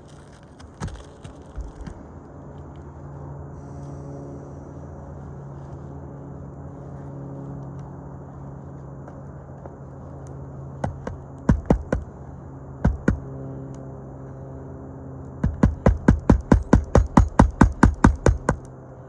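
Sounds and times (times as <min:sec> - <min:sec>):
low hum: 0:00.0 - 0:19.0
hammer striking nails: 0:10.8 - 0:12.1, 0:12.8 - 0:13.3, 0:15.4 - 0:18.7.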